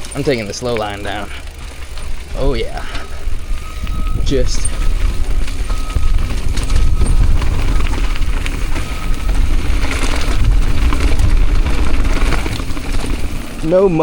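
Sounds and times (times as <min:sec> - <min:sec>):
bike clicking and rattling: 0:00.0 - 0:14.0
wind rumble on microphone: 0:01.7 - 0:14.0.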